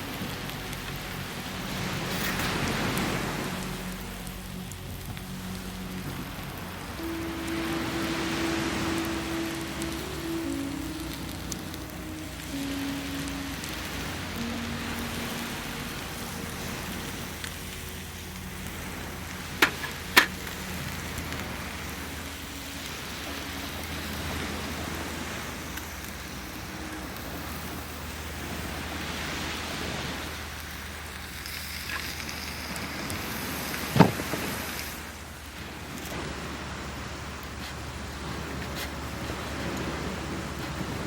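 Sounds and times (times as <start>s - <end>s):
campfire hissing and crackling: 0.0s - 41.0s.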